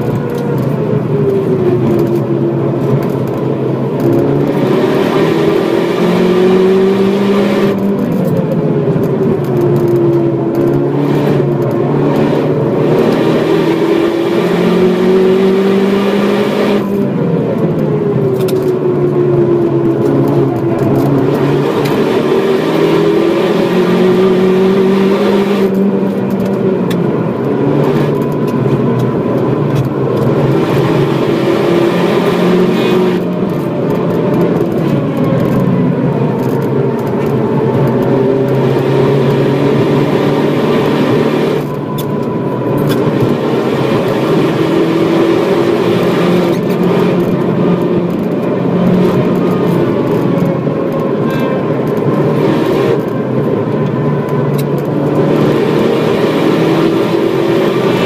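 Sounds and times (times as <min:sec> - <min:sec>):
car engine running hard: 0:00.0 - 0:58.0.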